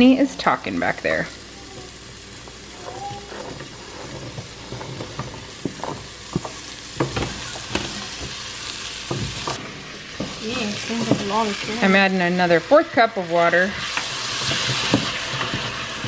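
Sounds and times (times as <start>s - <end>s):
onions sizzling in oil: 0.0s - 16.0s
wooden spoon scraping pot: 2.9s - 8.0s.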